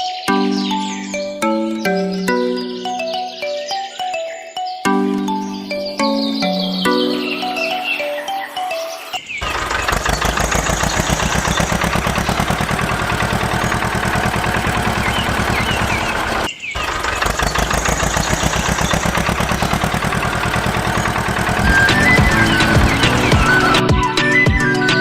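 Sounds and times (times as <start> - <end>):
engine chugging: 9.4 - 25.0.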